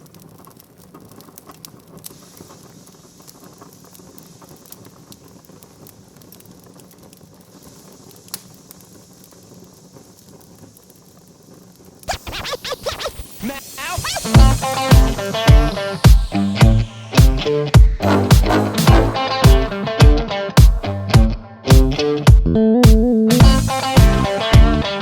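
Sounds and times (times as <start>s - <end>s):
wood fire crackling: 0.0s - 22.4s, 23.4s - 25.0s
music: 12.1s - 25.0s.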